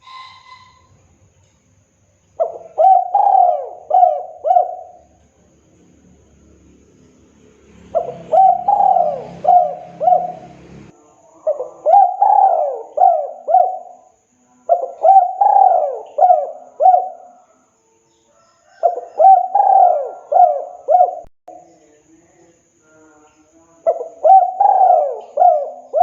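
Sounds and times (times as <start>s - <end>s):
dove cooing: 2.4s - 5.5s, 7.8s - 14.0s, 14.7s - 17.5s, 18.7s - 21.3s, 23.8s - 26.0s.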